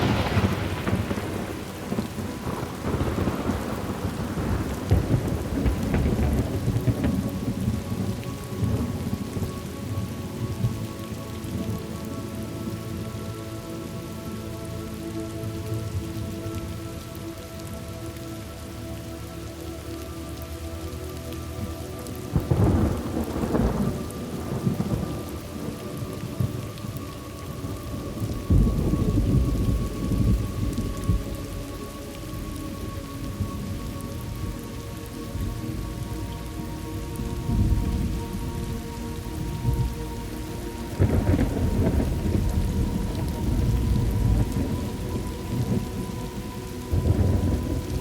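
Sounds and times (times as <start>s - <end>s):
thunder rumbling: 0.0s - 17.7s, 21.6s - 48.0s
steady rain: 0.0s - 48.0s.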